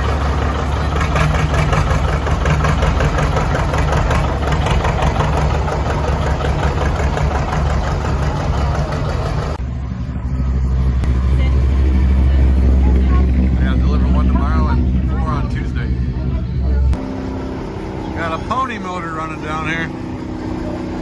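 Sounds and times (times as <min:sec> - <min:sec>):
tractor engines running: 0:00.0 - 0:21.0.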